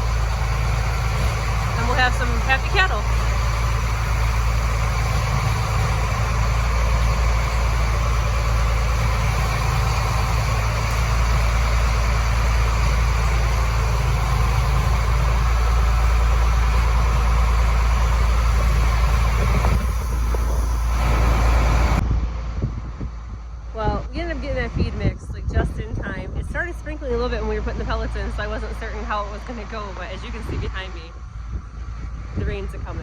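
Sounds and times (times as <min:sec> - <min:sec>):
feed mixer wagon churning: 0:00.0 - 0:22.0
engine droning: 0:00.0 - 0:33.0.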